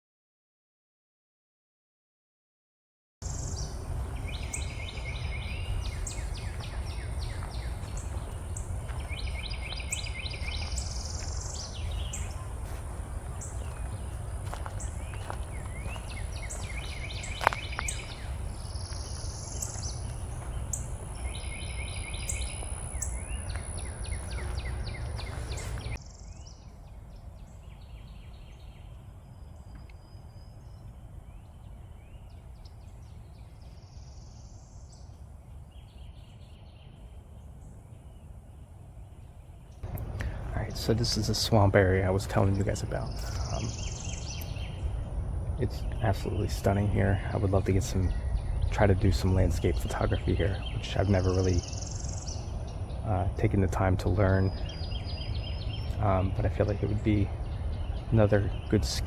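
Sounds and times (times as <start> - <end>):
high insect whine: 3.2 - 26.2
songbird trilling: 3.2 - 26.6, 39.8 - 59.0.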